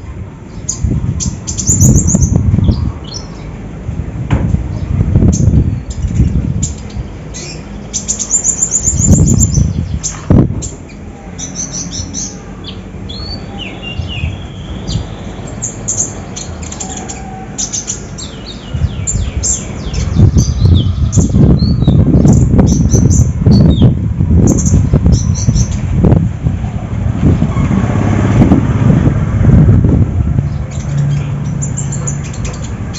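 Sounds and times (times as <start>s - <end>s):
loud low rumbling: 0.0s - 32.9s
songbird chirping: 4.7s - 23.9s.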